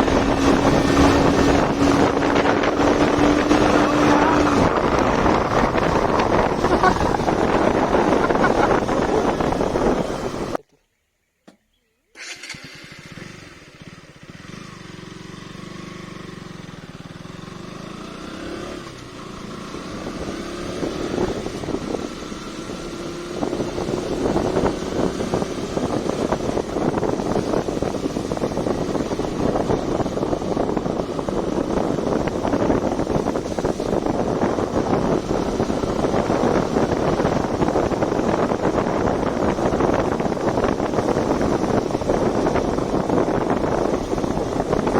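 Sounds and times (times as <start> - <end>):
motorcycle engine accelerating: 0.0 - 10.6, 12.2 - 44.9
wind rushing over microphone: 0.0 - 10.6, 17.4 - 44.9.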